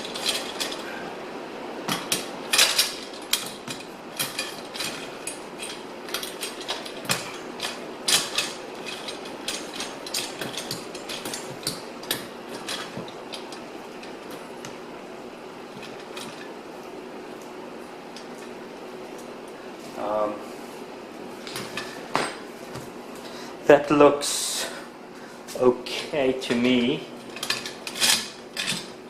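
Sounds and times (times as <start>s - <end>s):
loose metal parts rattling: 0.0s - 1.1s, 1.9s - 14.8s, 26.4s - 29.0s.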